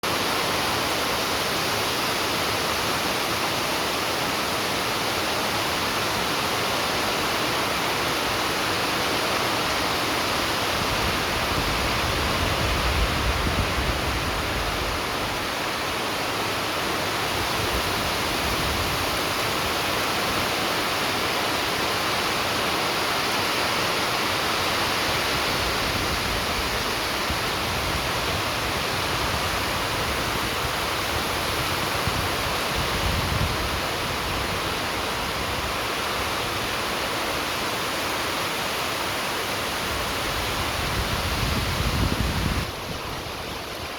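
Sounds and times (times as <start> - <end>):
heavy rain: 0.0 - 43.9.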